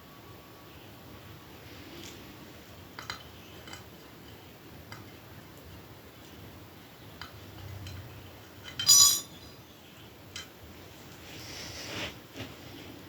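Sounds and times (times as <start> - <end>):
soft breath-like hiss: 11.2 - 12.2.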